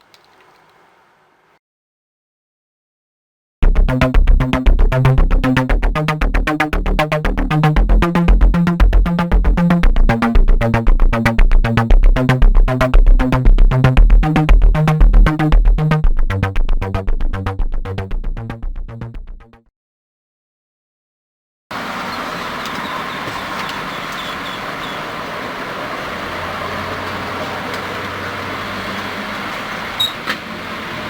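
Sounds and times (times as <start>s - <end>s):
electronic synthesizer music with beat: 3.6s - 19.7s.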